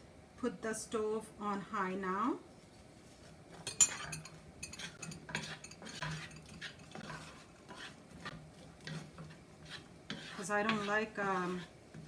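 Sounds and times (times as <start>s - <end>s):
utensil scraping onion in pan: 2.6s - 12.0s.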